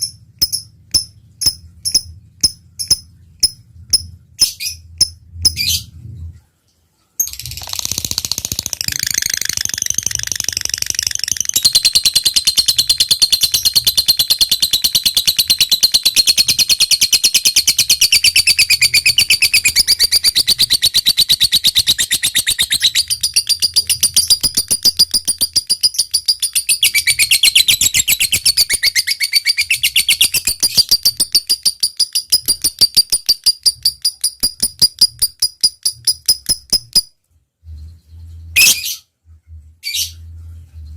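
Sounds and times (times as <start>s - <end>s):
lovebird trilling: 7.2s - 37.1s.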